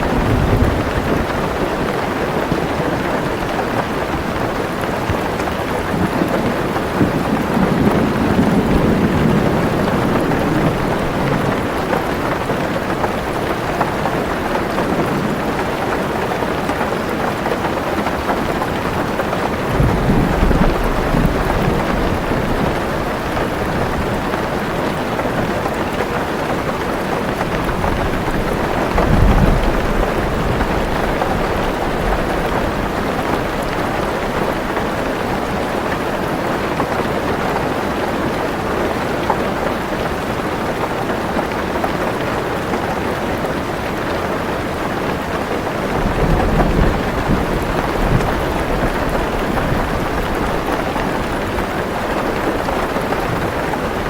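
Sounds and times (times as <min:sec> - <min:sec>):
low thunder rumbles: 0:00.0 - 0:03.4, 0:05.0 - 0:16.5, 0:18.2 - 0:25.8, 0:26.5 - 0:36.0, 0:45.5 - 0:54.0
heavy rain on a car roof: 0:00.0 - 0:54.0.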